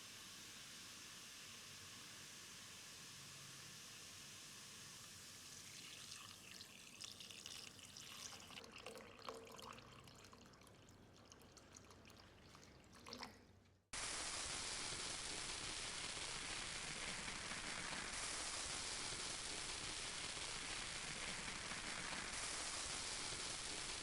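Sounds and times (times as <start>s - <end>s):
steady hiss: 0.0s - 5.8s, 14.0s - 24.0s
water pouring and trickling: 4.9s - 13.7s.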